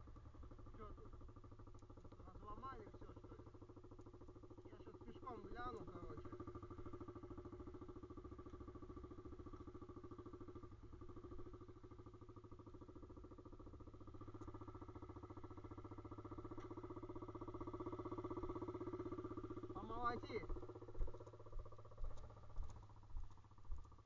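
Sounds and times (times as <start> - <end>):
motorbike engine idling: 0.0 - 24.0.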